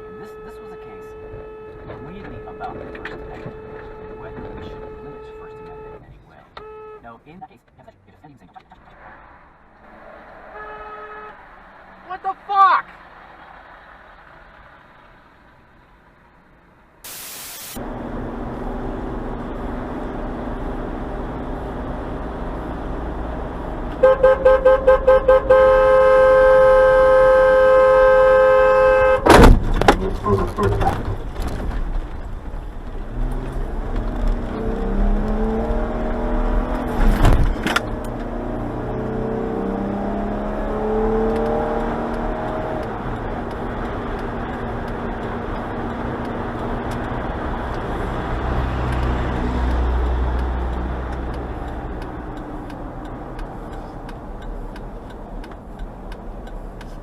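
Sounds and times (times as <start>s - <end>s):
car horn honking: 0.0s - 7.2s, 10.4s - 11.5s, 23.9s - 31.1s
road and engine noise: 0.0s - 57.0s
heavy bang: 29.2s - 31.8s.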